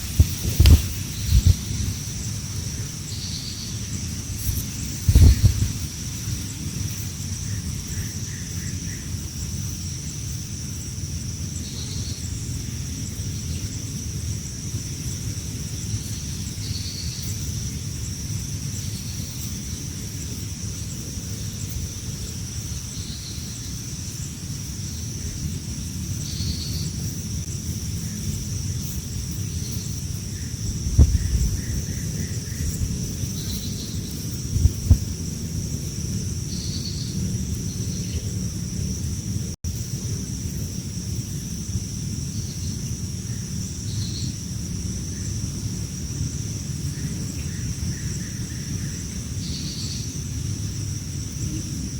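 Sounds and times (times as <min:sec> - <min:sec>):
high-pitched insect drone: 0:00.0 - 0:51.9
wind rumble on microphone: 0:00.0 - 0:51.9.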